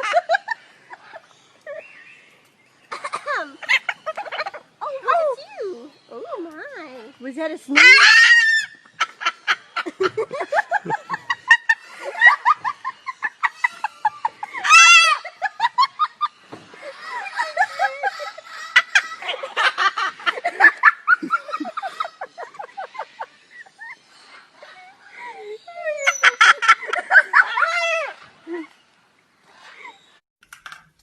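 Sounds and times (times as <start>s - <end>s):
shrill wavering squawk: 7.7s - 8.9s.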